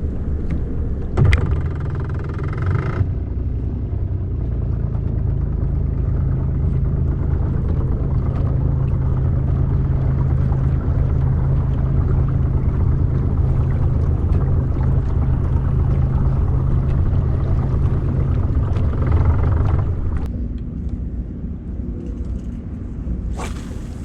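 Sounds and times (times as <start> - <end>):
boat motor droning: 0.0 - 20.3
higher whirring sound: 23.3 - 24.0.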